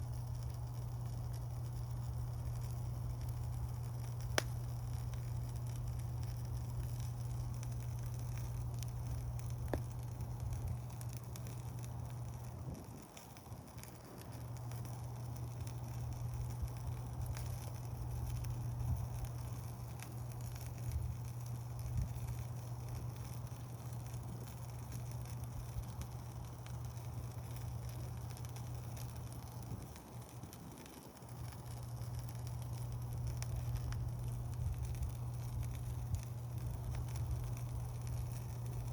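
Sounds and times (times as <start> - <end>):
campfire crackling and popping: 0.0 - 38.9
low rumble: 31.4 - 38.9.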